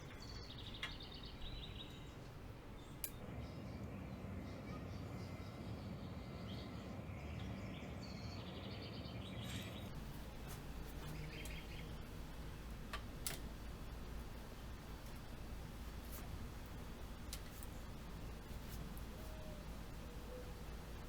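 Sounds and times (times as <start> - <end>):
sharp clicks: 0.0 - 3.3, 9.9 - 15.4
birds chirping: 0.0 - 21.0
low steady hum: 0.0 - 21.0.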